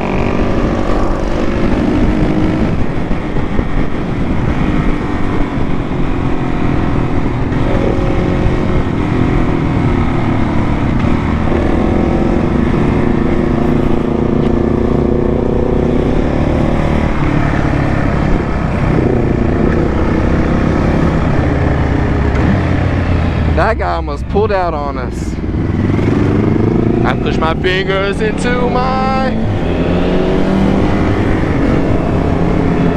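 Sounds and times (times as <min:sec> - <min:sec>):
wind and road noise: 0:00.0 - 0:32.9
motorcycle engine running: 0:24.6 - 0:32.9.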